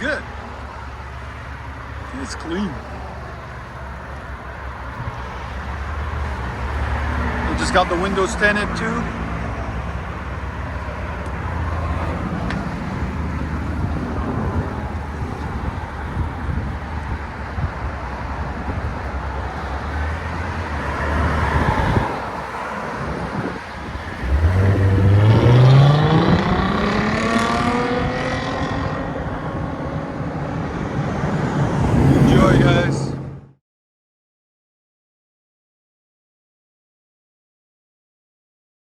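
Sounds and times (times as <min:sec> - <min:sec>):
car exhaust engine note: 0:00.6 - 0:29.7.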